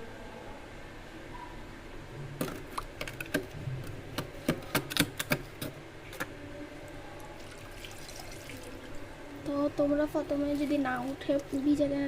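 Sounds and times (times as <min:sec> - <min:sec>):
steady low hum: 0:00.0 - 0:12.0
hard objects clicking and knocking: 0:02.4 - 0:06.3.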